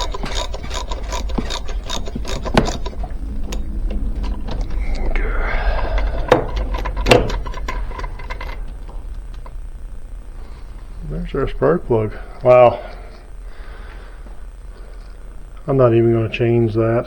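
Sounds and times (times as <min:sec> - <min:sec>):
ratchet wrench clicking: 0:00.0 - 0:03.6
metal tools knocking: 0:00.0 - 0:04.7.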